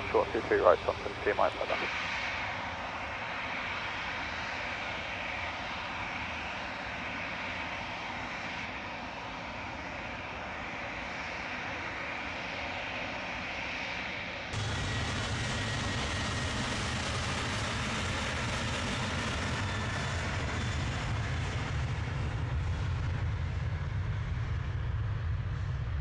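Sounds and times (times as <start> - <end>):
faint high whine: 0.0 - 2.0
aircraft engines rushing: 0.0 - 26.0.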